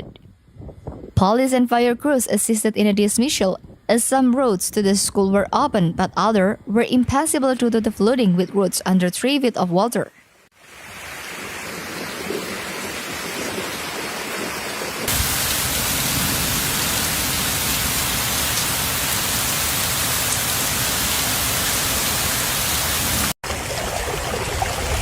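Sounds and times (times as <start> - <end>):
heavy rain pouring: 10.6 - 23.4.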